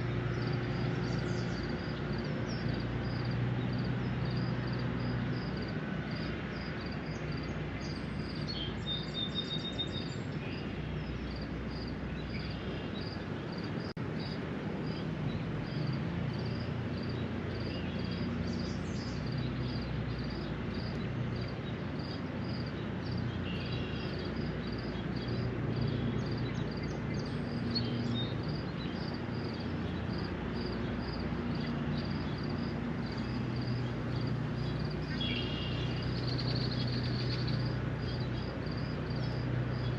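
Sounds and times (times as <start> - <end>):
distant traffic hum: 0.0 - 39.9
bird calls: 17.0 - 30.0, 30.6 - 39.9.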